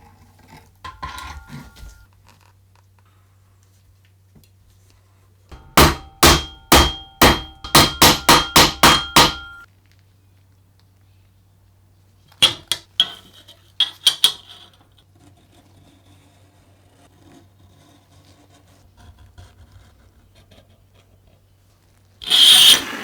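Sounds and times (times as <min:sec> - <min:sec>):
ringing hammer blows: 0:05.5 - 0:09.6.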